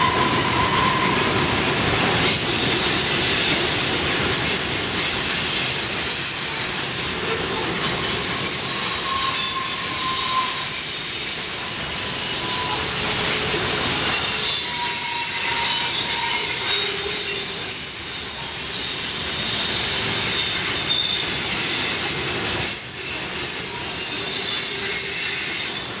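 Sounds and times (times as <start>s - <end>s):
train wheels rumbling on track: 0.0s - 26.0s
wheel flanges squealing on rail: 0.0s - 26.0s.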